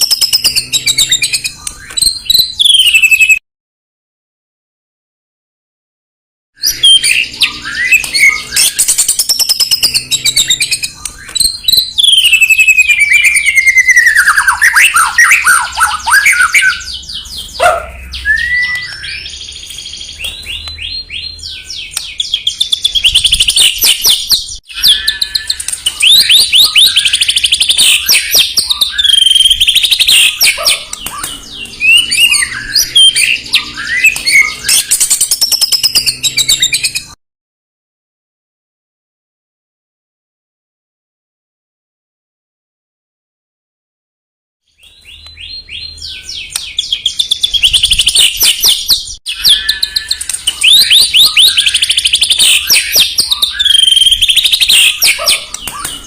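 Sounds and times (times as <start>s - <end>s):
songbird singing: 6.6s - 37.2s, 44.7s - 56.0s.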